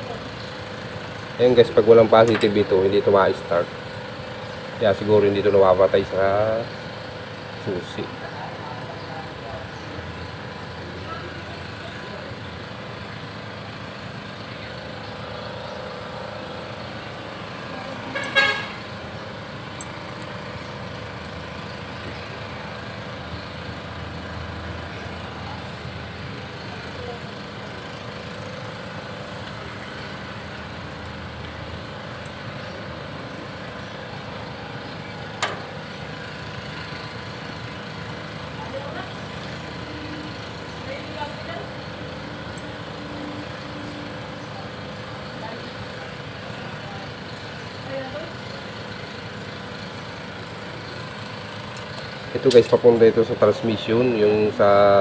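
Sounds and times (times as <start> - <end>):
vehicle horn toot: 18.0 - 19.0
sharp click: 35.4 - 35.7.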